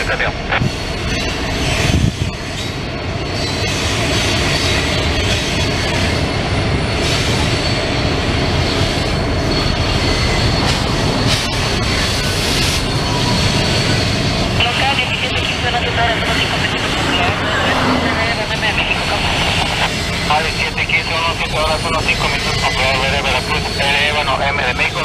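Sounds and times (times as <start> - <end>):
train cars rumbling on rails: 0.0 - 25.0
high wheel squeal: 0.8 - 14.7.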